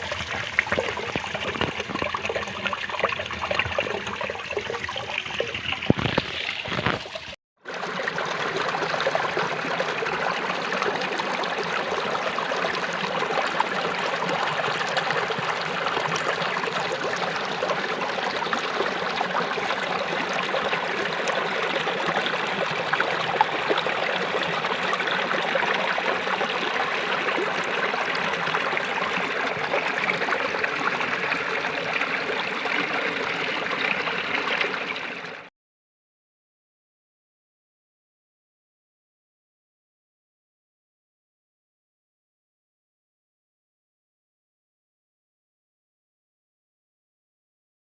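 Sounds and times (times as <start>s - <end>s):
stream flowing: 0.0s - 35.5s.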